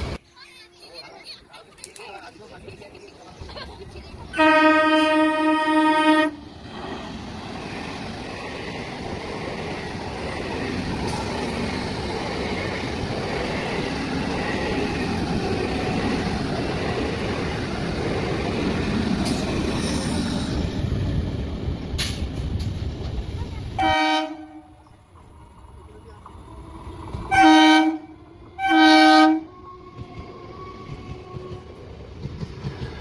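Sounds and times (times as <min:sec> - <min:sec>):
train rumbling: 0:00.0 - 0:01.0, 0:02.4 - 0:33.0
train horn blast: 0:04.4 - 0:06.4, 0:23.8 - 0:24.8, 0:27.3 - 0:31.8.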